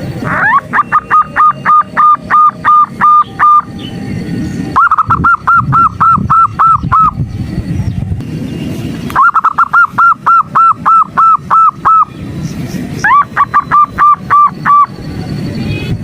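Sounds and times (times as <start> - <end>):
dove cooing: 0.1 - 3.8, 4.8 - 7.2, 9.2 - 12.1, 13.0 - 14.9.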